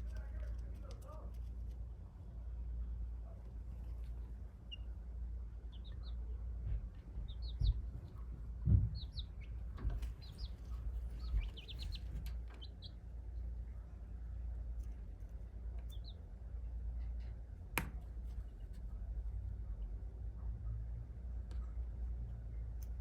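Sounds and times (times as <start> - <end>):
chick peeping: 3.9 - 13.1, 15.8 - 16.3
dull low thumps: 6.4 - 12.6.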